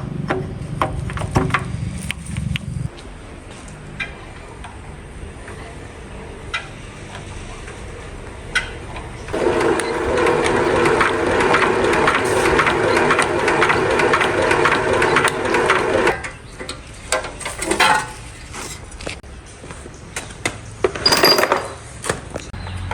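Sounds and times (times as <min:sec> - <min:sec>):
small machine mechanical chatter: 0:09.3 - 0:16.4.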